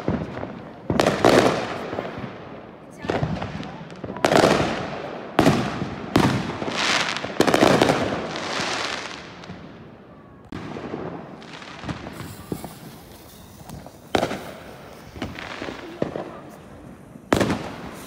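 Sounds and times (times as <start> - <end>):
firework bangs with hiss: 0.0 - 18.0
firework pops: 10.5 - 18.0.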